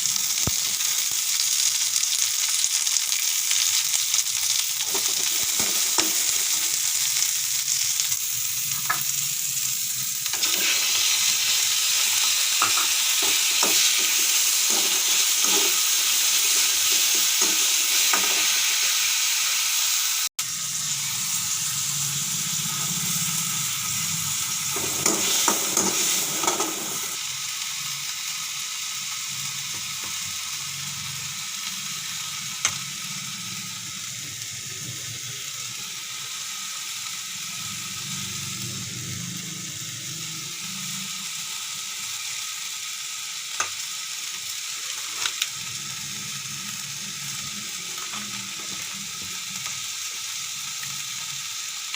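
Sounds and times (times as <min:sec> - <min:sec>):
vegetables sizzling in a pan: 0:00.0 - 0:51.9
spatula scraping a pan: 0:12.1 - 0:18.6, 0:24.7 - 0:27.2.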